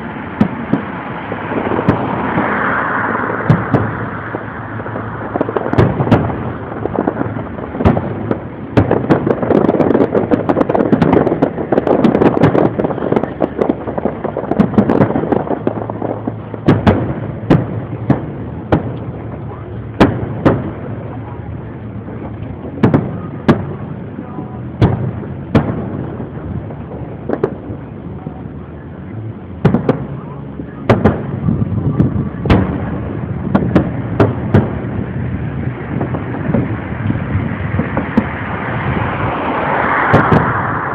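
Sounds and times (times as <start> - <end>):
firework shells bursting: 0.3 - 21.2, 32.1 - 40.9.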